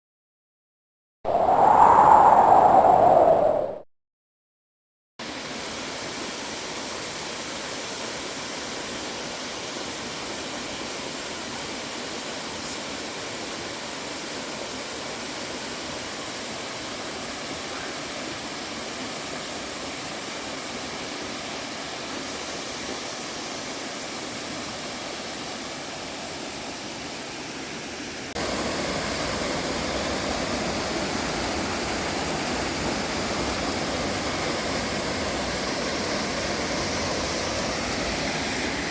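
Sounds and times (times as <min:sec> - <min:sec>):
waterfall rushing: 0:08.4 - 0:38.9.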